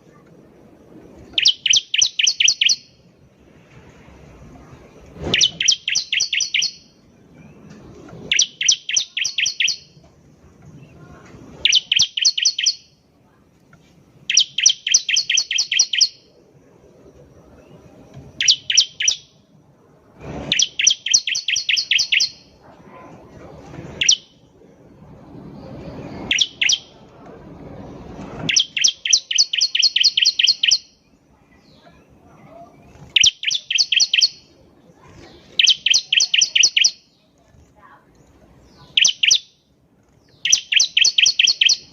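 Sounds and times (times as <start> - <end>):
low rumble: 22.6 - 26.3, 26.9 - 28.5.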